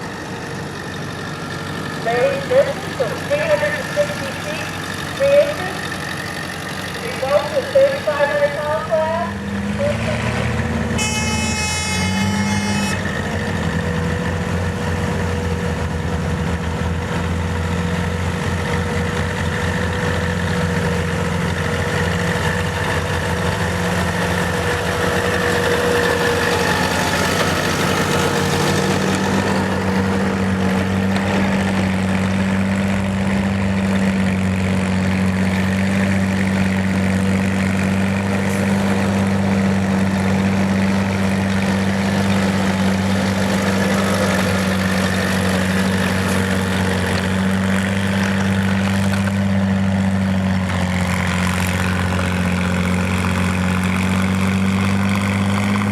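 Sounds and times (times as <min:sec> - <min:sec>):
tractor engine running: 0:00.0 - 0:55.9
horn sounding: 0:09.8 - 0:13.4.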